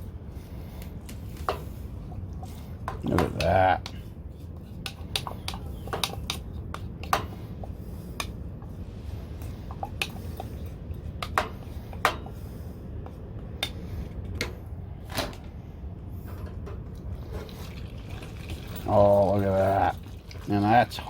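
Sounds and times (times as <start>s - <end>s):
utensil clinking against metal pot: 4.8s - 7.4s.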